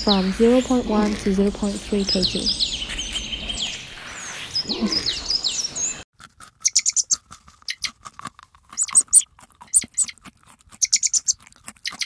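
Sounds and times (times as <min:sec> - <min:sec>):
rabbit nibbling leaves: 0:00.0 - 0:02.5, 0:06.2 - 0:12.0
small birds chirping: 0:00.0 - 0:08.0, 0:08.8 - 0:10.2, 0:10.8 - 0:12.0.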